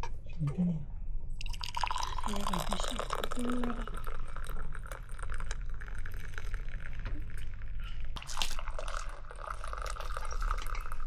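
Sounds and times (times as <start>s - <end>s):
liquid dripping and trickling: 8.2s - 11.0s.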